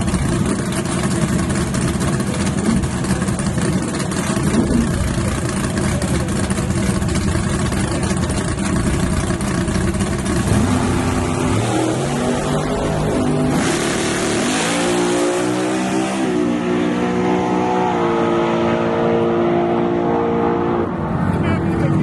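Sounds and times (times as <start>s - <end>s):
drag race engine idling: 0.0s - 15.2s.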